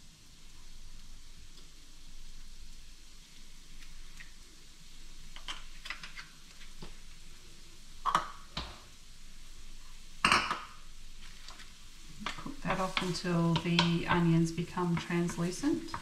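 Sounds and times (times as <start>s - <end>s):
onion and garlic sizzling in oil: 0.0s - 16.0s
kitchen items knocking and clattering: 8.0s - 8.8s.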